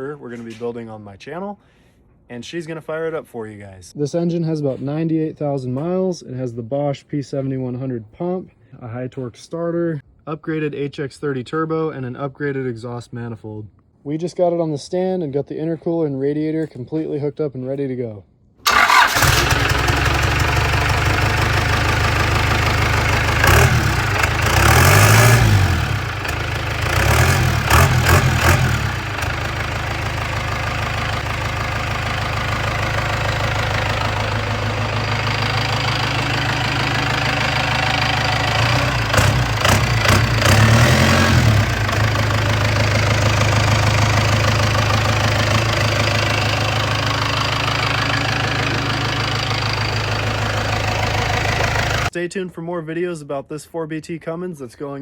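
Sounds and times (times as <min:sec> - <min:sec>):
diesel engine idling and revving: 0:18.7 - 0:52.1.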